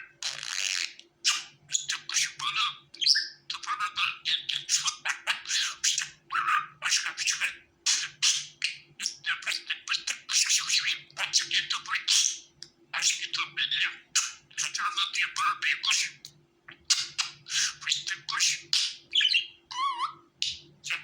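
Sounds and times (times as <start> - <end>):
faint steady low hum: 0.0 - 21.0
budgerigars chattering and warbling: 0.2 - 21.0.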